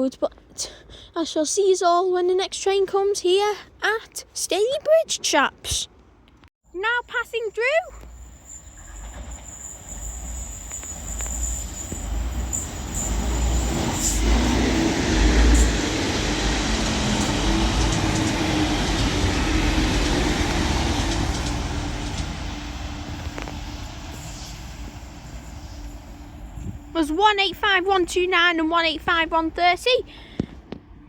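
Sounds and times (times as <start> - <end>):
high whine from the rails: 7.0 - 31.0
rushing rail noise: 7.8 - 31.0
train engine drone: 7.9 - 31.0.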